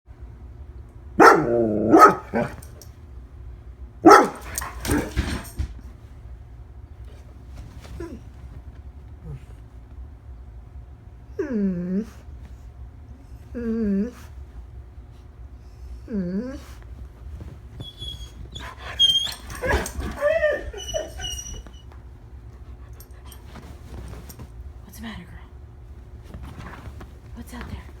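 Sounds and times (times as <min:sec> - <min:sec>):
dog barking: 0:01.2 - 0:02.6, 0:04.0 - 0:05.5
dog whining: 0:01.2 - 0:02.6, 0:04.1 - 0:05.5, 0:17.7 - 0:22.0.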